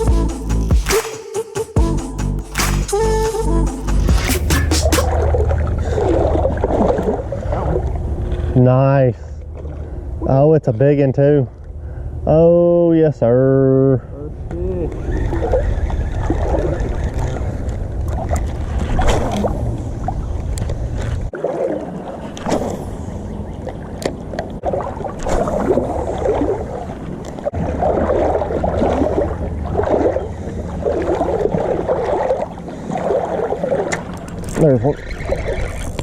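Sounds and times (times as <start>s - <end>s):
creek water rushing and splashing: 24.6s - 35.6s.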